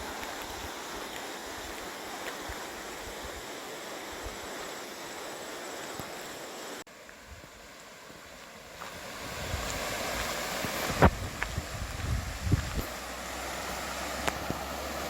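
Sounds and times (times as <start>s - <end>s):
rushing stream water: 0.0s - 15.0s
wind buffeting microphone: 9.0s - 13.0s.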